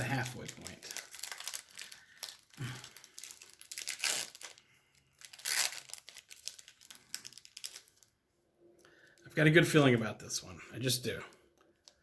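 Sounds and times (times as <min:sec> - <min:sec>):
card pack wrapper tearing: 0:00.0 - 0:08.1.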